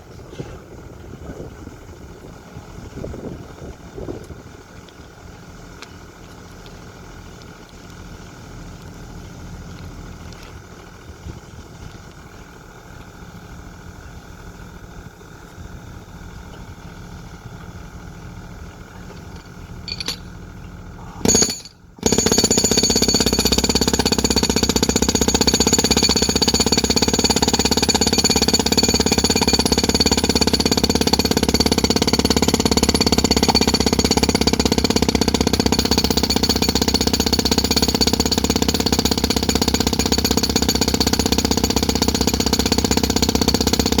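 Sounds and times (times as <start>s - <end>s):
construction machine hammering: 21.2s - 44.0s.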